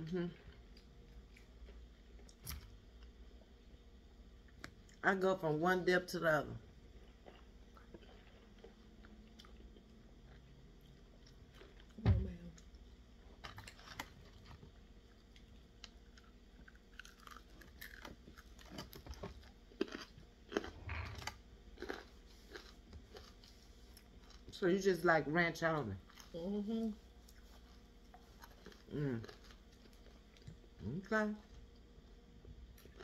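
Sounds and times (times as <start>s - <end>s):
chewing and biting food: 6.8s - 12.0s, 13.4s - 24.5s, 27.3s - 30.8s, 32.6s - 33.0s.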